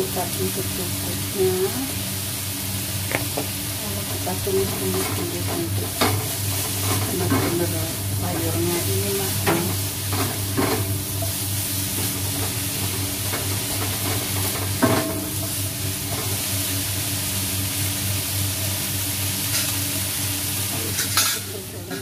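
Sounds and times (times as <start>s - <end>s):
vegetables sizzling in a wok: 0.0s - 22.0s
utensil knocking against wok: 3.0s - 3.5s.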